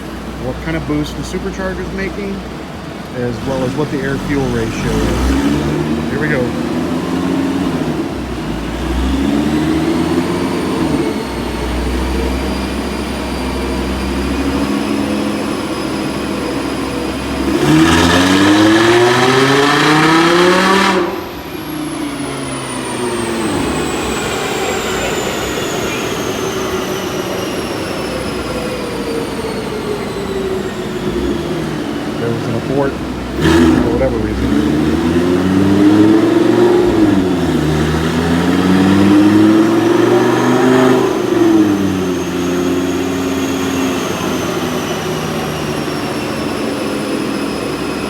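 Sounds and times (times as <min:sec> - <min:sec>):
car engine revving on dyno: 0:00.0 - 0:48.0
dyno rollers whining: 0:00.0 - 0:48.0.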